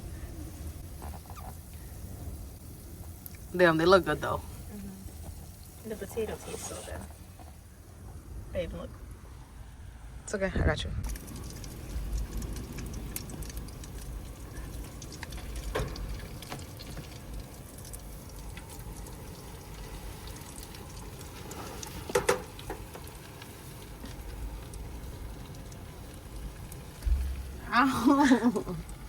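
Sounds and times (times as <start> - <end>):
patties sizzling in a pan: 11.1 - 29.0.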